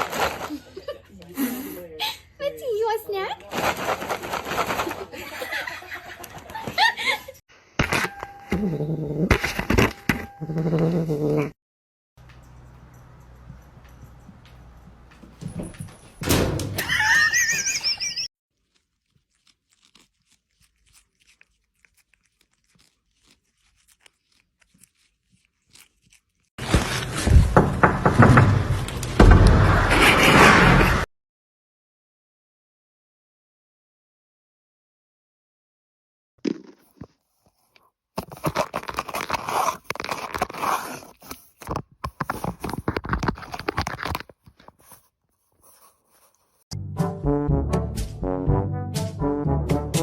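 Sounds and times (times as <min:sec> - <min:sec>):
rapid crunching and crackling: 0:00.0 - 0:00.8, 0:03.4 - 0:05.5, 0:18.5 - 0:27.3, 0:36.4 - 0:46.7.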